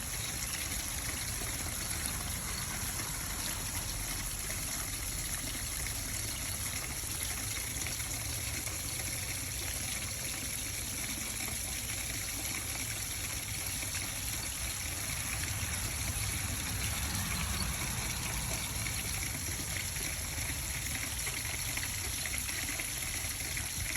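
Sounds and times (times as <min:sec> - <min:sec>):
water trickling down rain chain: 0:00.0 - 0:23.9.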